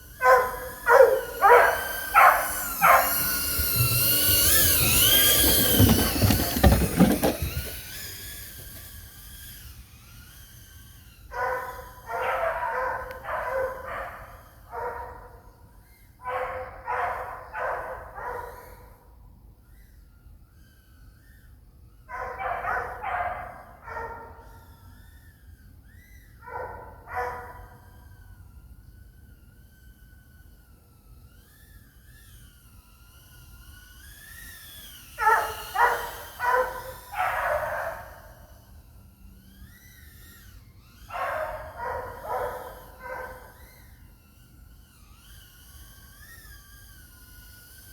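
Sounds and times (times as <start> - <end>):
dogs barking: 0.2 - 7.7, 11.3 - 15.4, 16.2 - 18.8, 22.1 - 24.6, 26.4 - 27.8, 35.2 - 38.5, 41.1 - 43.6
faint wavering whine: 23.6 - 47.9.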